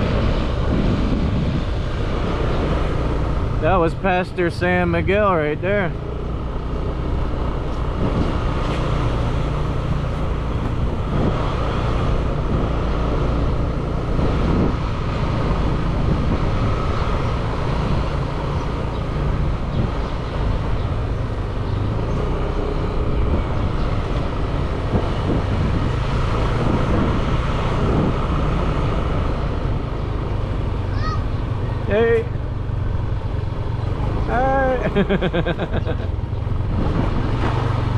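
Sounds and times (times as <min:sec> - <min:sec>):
road noise: 0:00.0 - 0:37.9
motorbike engine running: 0:05.9 - 0:14.7.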